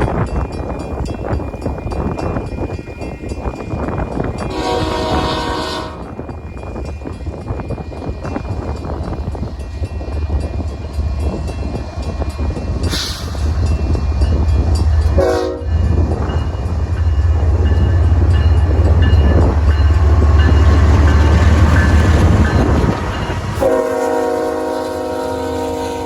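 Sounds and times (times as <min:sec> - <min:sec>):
diesel locomotives rumbling: 0:00.0 - 0:26.0
train air horn: 0:04.5 - 0:06.2, 0:15.1 - 0:15.8, 0:23.6 - 0:26.0.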